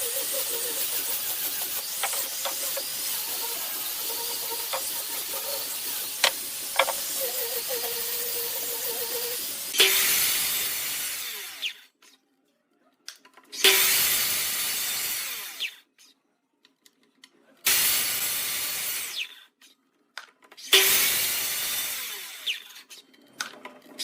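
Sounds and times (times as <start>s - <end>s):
power tool cutting wood: 0.0s - 11.9s, 13.5s - 15.8s, 17.7s - 19.4s, 20.6s - 22.9s.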